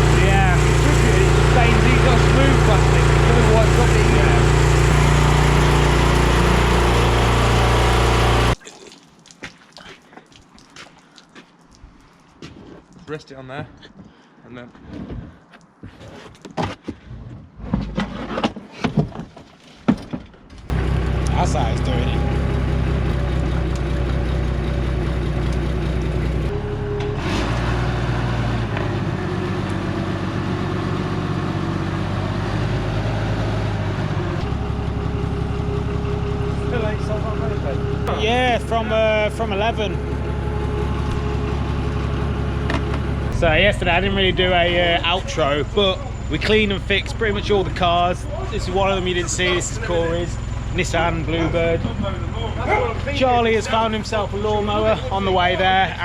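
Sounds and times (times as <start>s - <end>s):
loud motor running: 0.0s - 8.6s, 20.7s - 56.0s
vehicle engine humming: 0.0s - 8.6s, 20.6s - 56.0s.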